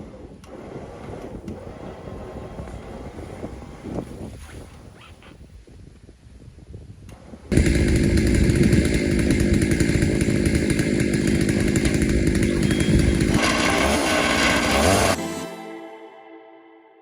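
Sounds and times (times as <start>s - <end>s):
chainsaw cutting log: 0.0s - 4.0s, 7.1s - 15.5s.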